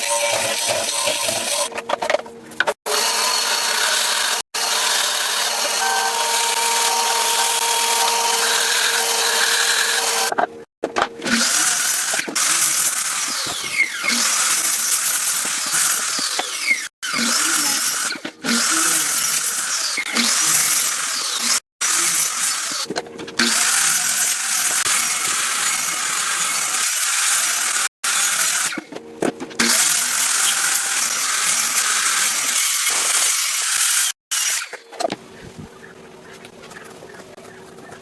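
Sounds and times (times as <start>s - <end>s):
power tool motor whine: 2.9s - 10.4s.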